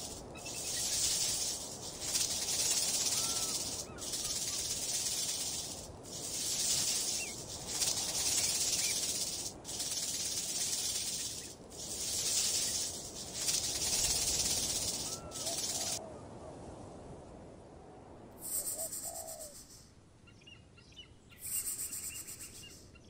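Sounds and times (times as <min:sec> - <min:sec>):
rattlesnake tail rattle: 0:00.0 - 0:16.0.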